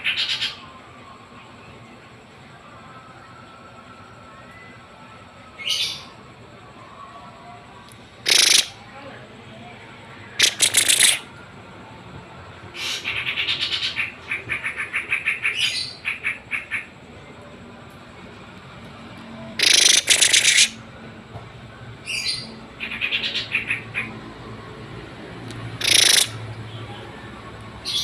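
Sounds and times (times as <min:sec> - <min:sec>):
songbirds chattering trills: 0:08.2 - 0:08.8, 0:10.4 - 0:11.3, 0:19.6 - 0:20.8, 0:25.6 - 0:26.9.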